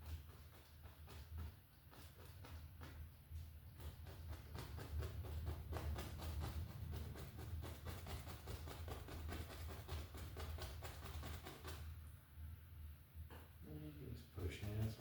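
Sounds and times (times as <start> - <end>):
paintbrush tapping on canvas: 0.0 - 11.9.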